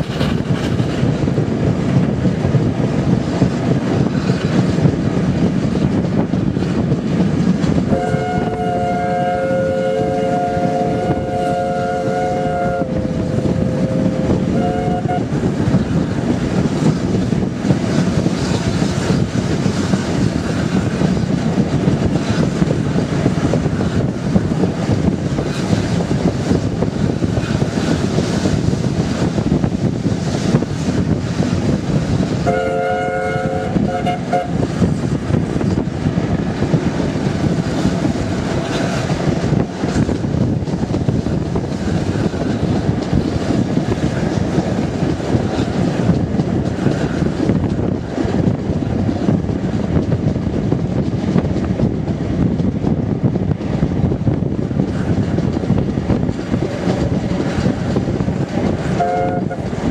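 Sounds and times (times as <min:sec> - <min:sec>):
railway carriage rumbling on track: 0:00.0 - 0:59.9
steam locomotive whistle: 0:07.9 - 0:15.3, 0:32.4 - 0:34.6, 0:59.0 - 0:59.7.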